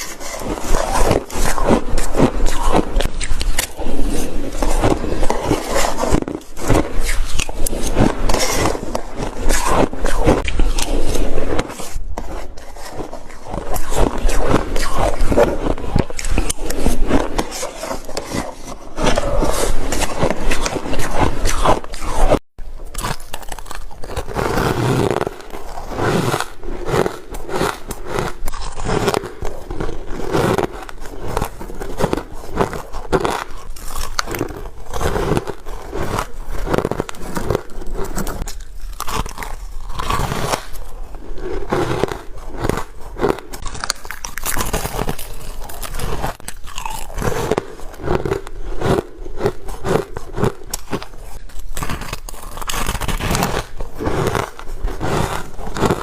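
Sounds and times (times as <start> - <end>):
chewing shaved ice: 0.0 - 11.8, 12.6 - 56.0.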